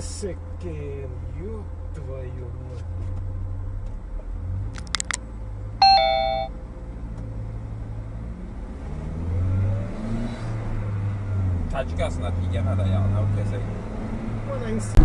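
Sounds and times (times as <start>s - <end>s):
vehicle engine and road hum: 0.0s - 15.0s
sharp clicks: 4.7s - 5.2s
two-note electronic chime: 5.8s - 6.5s.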